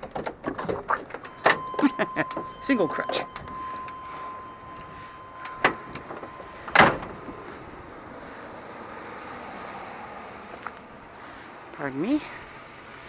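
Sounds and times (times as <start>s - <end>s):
steady tone: 1.3s - 9.0s
van door slamming shut: 5.6s - 7.4s.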